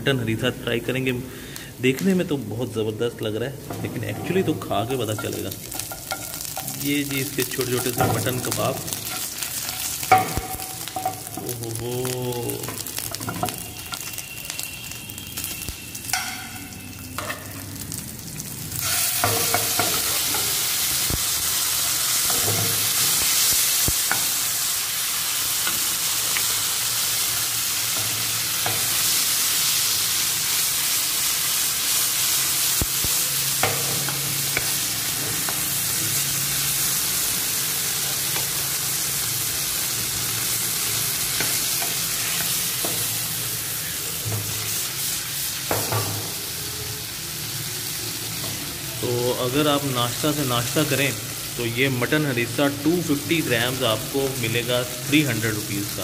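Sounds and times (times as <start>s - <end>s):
meat and onions sizzling in oil: 0.2s - 56.0s
metal spoon scraping a pan: 4.0s - 11.2s.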